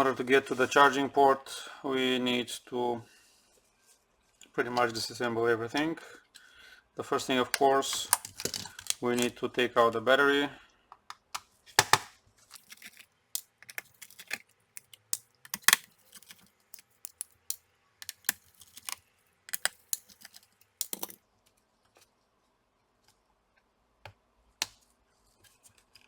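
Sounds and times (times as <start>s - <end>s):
screwdriver clicking on plastic: 13.4s - 17.4s.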